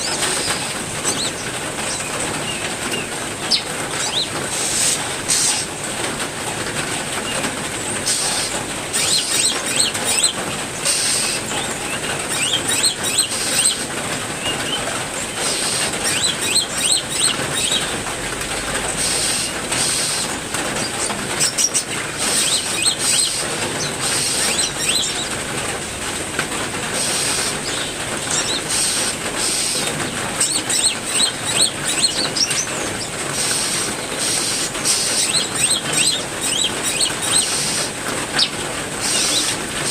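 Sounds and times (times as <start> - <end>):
songbirds chirping: 0.0 - 5.7, 6.7 - 18.0, 19.1 - 25.5, 27.0 - 39.9
heavy rain: 0.0 - 39.9.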